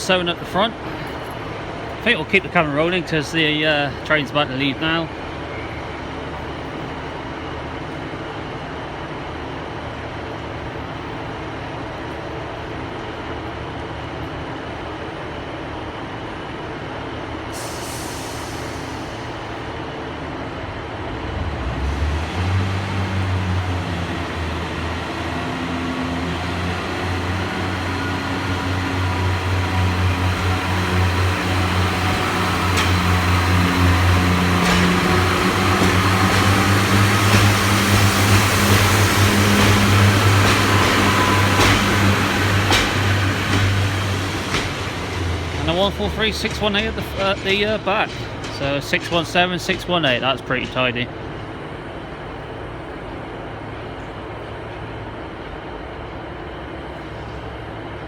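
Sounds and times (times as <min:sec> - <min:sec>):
diesel train engines: 0:00.0 - 0:58.0
air hiss: 0:17.5 - 0:19.3.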